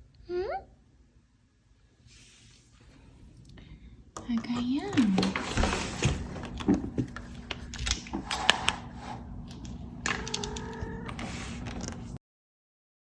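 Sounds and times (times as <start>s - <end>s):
rustling: 4.5s - 9.2s.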